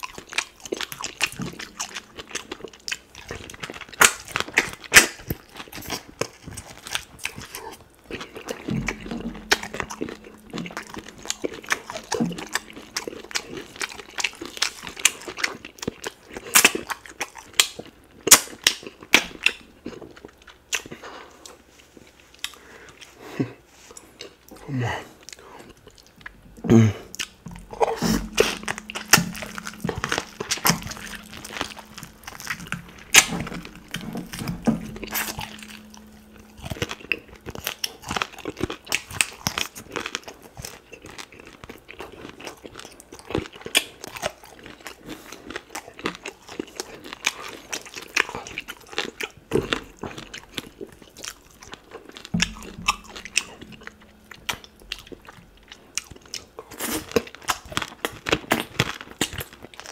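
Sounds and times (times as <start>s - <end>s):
low steady hum: 0.0s - 16.4s, 25.7s - 41.4s, 47.8s - 57.5s
chewing and crunching meat and bone: 0.0s - 59.9s.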